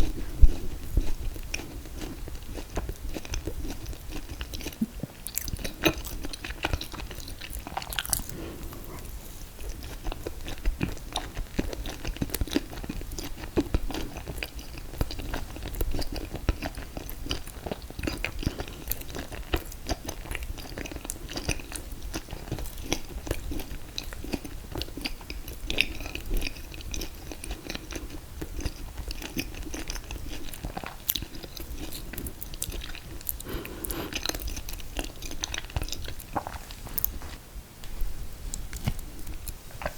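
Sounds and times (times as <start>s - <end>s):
wet mouth sounds: 0.0s - 9.2s, 32.7s - 37.2s
chewing and biting: 0.0s - 37.4s.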